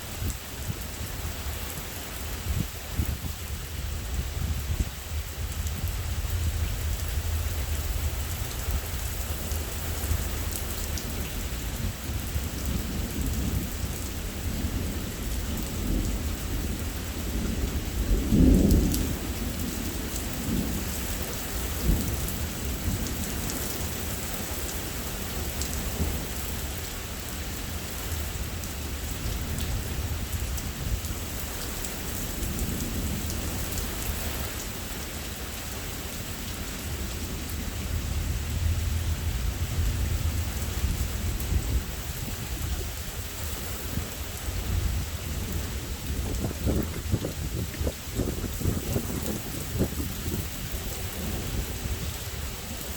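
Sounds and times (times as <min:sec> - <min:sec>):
heavy rain: 0:00.0 - 0:52.9
thunder rumbling: 0:03.9 - 0:24.6, 0:36.8 - 0:52.9.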